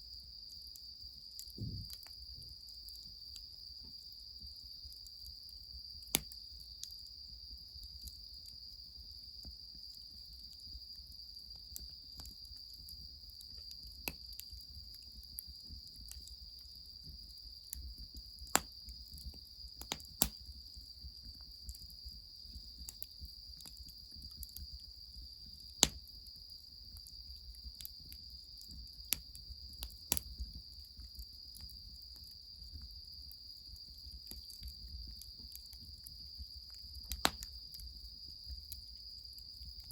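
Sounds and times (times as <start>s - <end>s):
insects trilling: 0.0s - 39.9s
wood fire popping and crackling: 1.4s - 2.2s, 11.5s - 16.4s, 17.0s - 24.6s, 25.4s - 26.2s, 33.6s - 38.0s.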